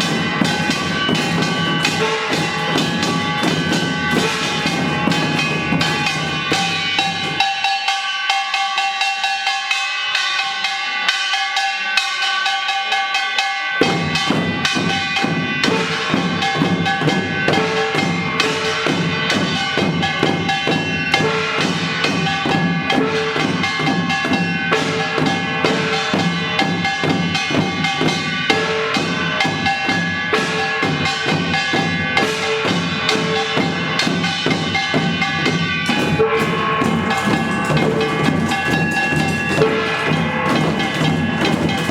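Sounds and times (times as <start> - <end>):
drums playing: 0.0 - 8.0, 13.8 - 41.9
small gongs clanging: 0.0 - 41.9.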